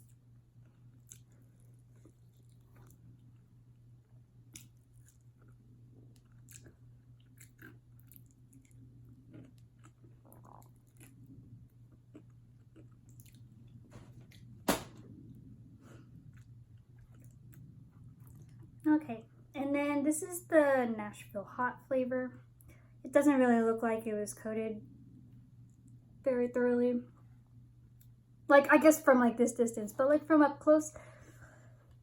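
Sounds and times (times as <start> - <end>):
person chewing chicken wings: 0.0 - 3.5, 4.5 - 13.8, 16.1 - 18.8.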